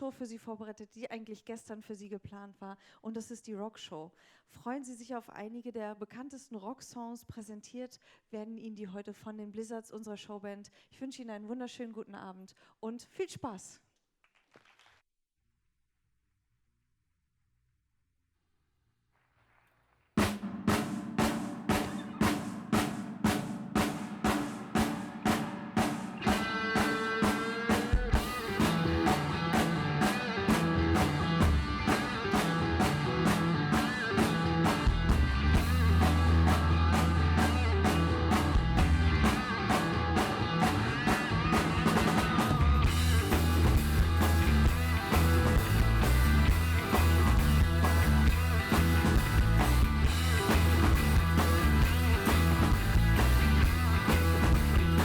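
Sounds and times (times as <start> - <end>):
cymbals: 20.2 - 34.8
drum kit beat: 20.2 - 55.0
rock band playing: 20.2 - 55.0.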